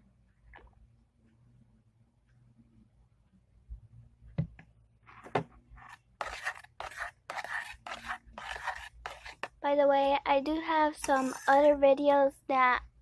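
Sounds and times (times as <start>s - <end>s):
spoon stirring slime: 5.8s - 10.1s, 10.9s - 11.8s.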